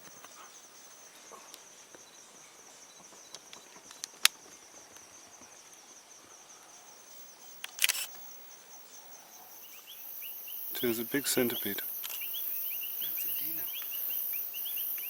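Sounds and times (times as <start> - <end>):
insects chirring: 0.0 - 15.0
sharp clicks: 7.6 - 8.2, 12.0 - 12.3.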